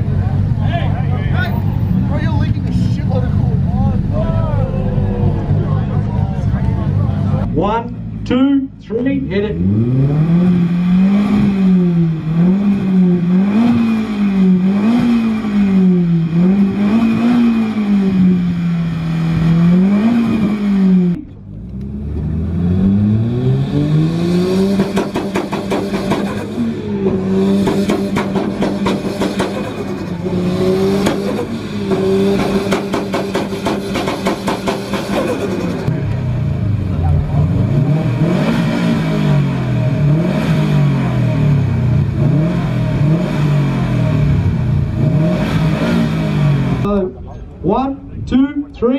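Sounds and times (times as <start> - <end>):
car engine revving: 0.0 - 47.6
exhaust popping at high revs: 22.2 - 47.0.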